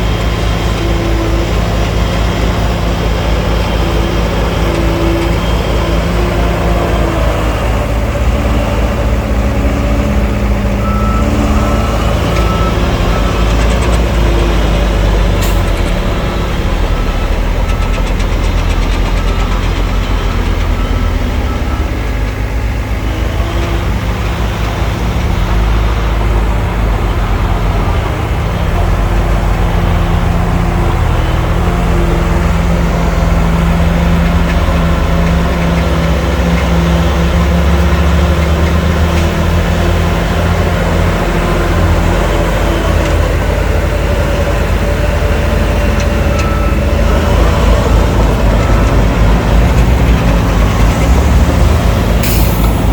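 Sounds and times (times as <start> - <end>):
earthmoving machinery diesel engines: 0.0 - 52.9
reversing alarm beeping: 3.0 - 23.9, 36.8 - 52.9.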